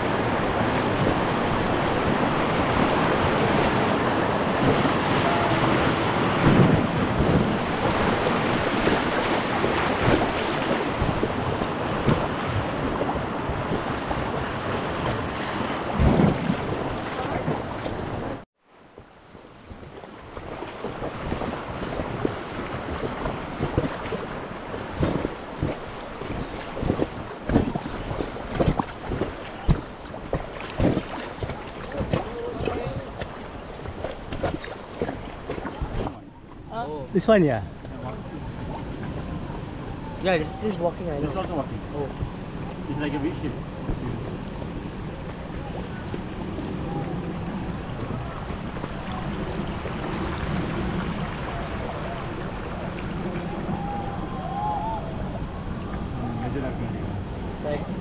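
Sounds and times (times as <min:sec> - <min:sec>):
river rapids rushing: 0:00.0 - 0:18.4, 0:46.5 - 0:55.4
wind buffeting microphone: 0:00.0 - 0:18.4, 0:19.6 - 0:58.0
paddles splashing and knocking: 0:00.0 - 0:39.7, 0:40.3 - 0:54.5
river water rushing: 0:00.0 - 0:57.8.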